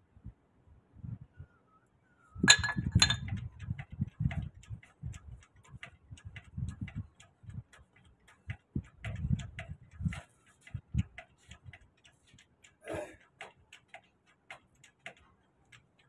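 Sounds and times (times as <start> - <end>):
metal clinks: 2.5 - 3.4
jack ticking and knocking: 2.5 - 16.0.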